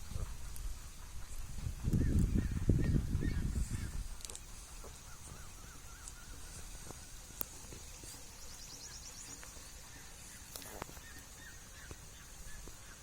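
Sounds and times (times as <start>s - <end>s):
farm birds calling: 0.0s - 13.0s.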